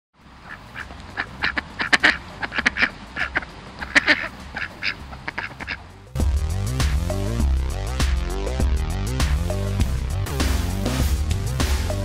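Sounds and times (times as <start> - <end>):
ducks quacking: 0.4 - 5.9.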